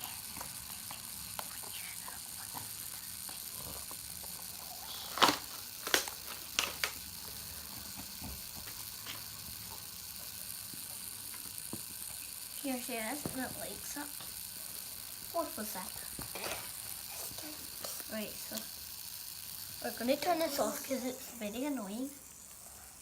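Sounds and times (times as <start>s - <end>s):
plastic toys clicking and tapping: 0.0s - 22.1s
faint steady hiss: 0.0s - 23.0s.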